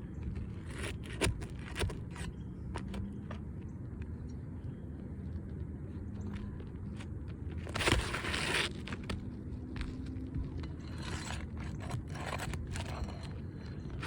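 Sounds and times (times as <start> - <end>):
roofing shingle scraping and tearing: 0.2 - 3.4, 6.4 - 14.0.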